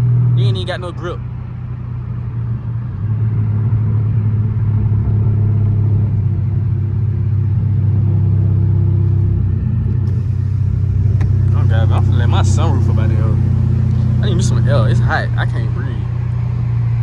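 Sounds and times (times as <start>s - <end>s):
vee eight engine droning: 0.0s - 17.0s.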